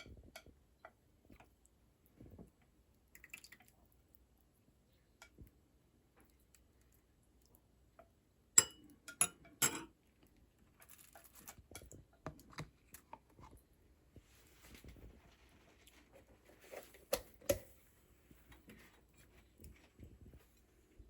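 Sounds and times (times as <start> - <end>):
objects being handled: 10.7 - 21.0.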